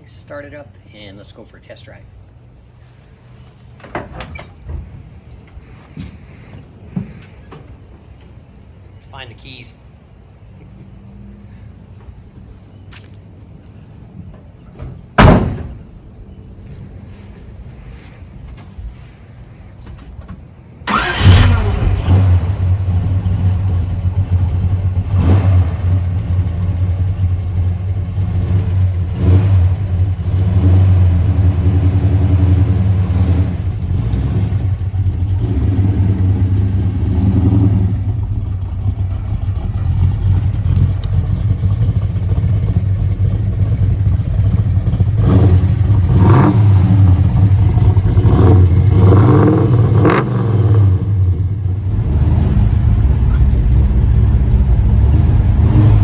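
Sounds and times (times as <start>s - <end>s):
car engine starting and rumbling: 13.0s - 56.0s
engine revving: 20.9s - 56.0s.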